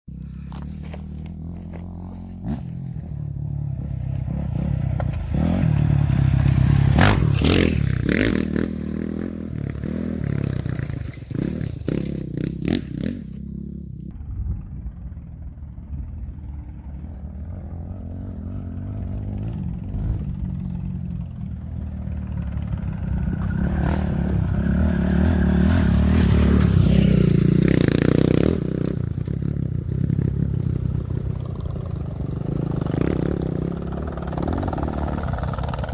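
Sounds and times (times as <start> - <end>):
race truck engines passing: 21.8 - 29.4.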